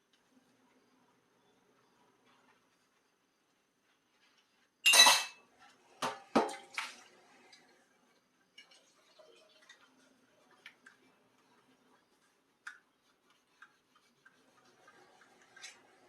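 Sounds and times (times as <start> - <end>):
dishes and cutlery clattering: 4.8 - 5.4.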